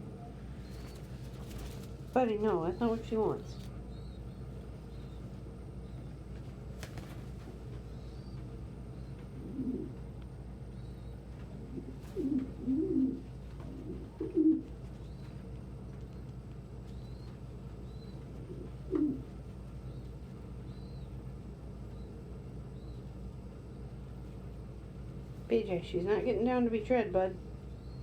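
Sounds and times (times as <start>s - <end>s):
steady low hum: 0.0s - 28.0s
pigeon cooing: 9.3s - 10.0s, 11.5s - 14.7s, 18.0s - 19.3s.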